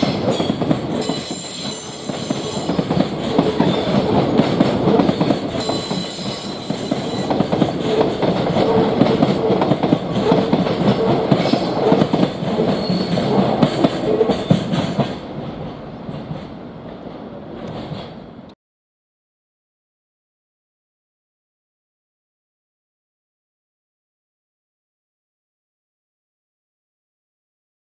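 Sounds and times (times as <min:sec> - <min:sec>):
train wagons clattering over rail joints: 0:00.0 - 0:18.4
high-pitched wheel squeal: 0:12.8 - 0:13.2.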